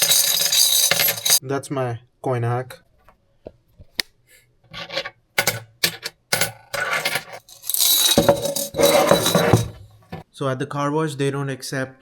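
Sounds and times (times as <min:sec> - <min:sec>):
coins clinking and rattling: 0:00.0 - 0:01.4, 0:04.7 - 0:10.2.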